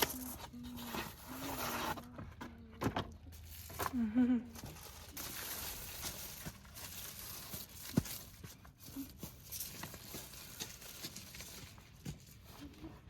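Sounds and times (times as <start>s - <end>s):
rustling: 3.3s - 13.0s.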